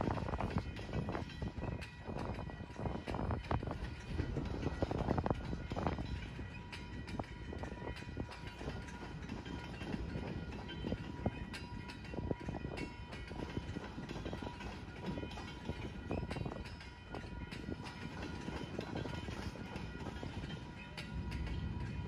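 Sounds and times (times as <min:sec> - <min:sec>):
freight train rumbling: 0:00.0 - 0:22.0
train wheel clicks and clanks: 0:00.0 - 0:22.0.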